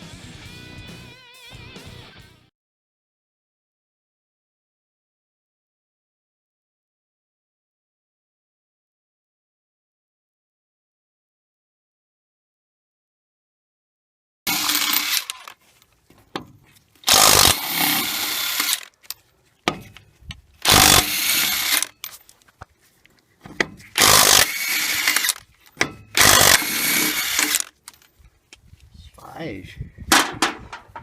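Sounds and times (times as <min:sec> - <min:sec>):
cordless impact wrench bursts: 0:14.5 - 0:15.6, 0:17.1 - 0:18.9, 0:20.6 - 0:21.9, 0:24.0 - 0:25.4, 0:26.1 - 0:27.7.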